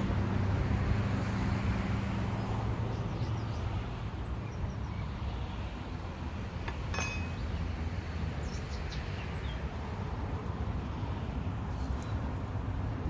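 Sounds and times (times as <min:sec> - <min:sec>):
sharp metallic clink: 0:06.7 - 0:07.5.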